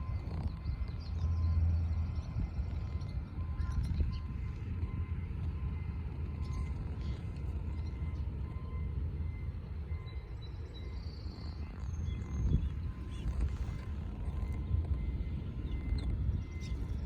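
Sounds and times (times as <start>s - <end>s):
faint high bird chirps: 10.0s - 17.0s.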